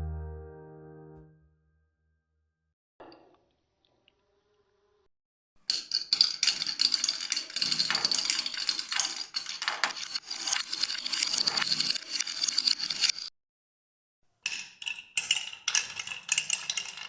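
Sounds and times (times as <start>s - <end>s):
marbles clattering down wooden track: 5.7s - 13.3s, 14.5s - 17.0s.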